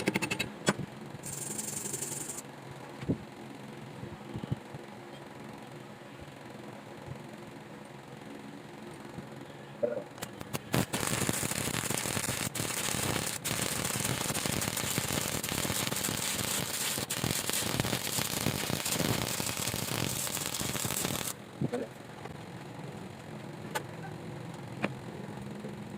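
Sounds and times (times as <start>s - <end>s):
welding arc sputters: 0.0s - 0.5s, 1.2s - 2.4s, 10.2s - 21.4s
welding arc crackling: 10.2s - 21.4s.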